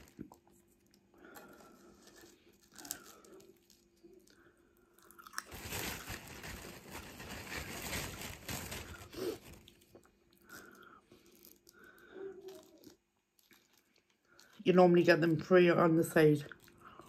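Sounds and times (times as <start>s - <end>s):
cracker being crunched: 5.2s - 9.9s
soft chewing: 9.3s - 14.7s, 16.4s - 17.0s.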